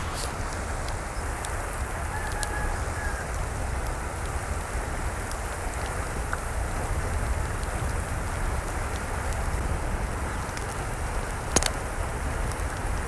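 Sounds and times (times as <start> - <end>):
water rushing with low rumble: 0.0 - 13.0
small scattered ticks: 11.5 - 11.9.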